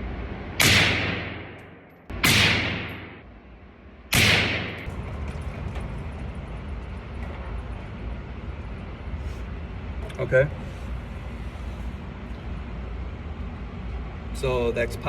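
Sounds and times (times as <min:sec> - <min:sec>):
rifle shots with echo: 0:00.6 - 0:03.3, 0:04.1 - 0:04.9.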